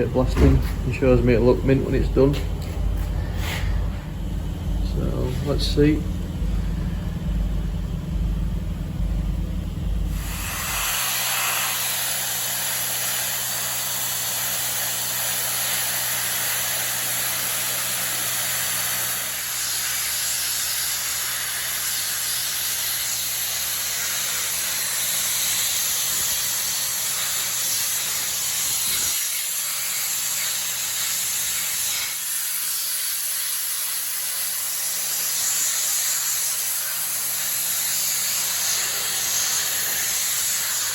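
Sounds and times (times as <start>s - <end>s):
low machine rumble: 0.0s - 11.2s
media-blasting gun hissing: 10.1s - 40.9s.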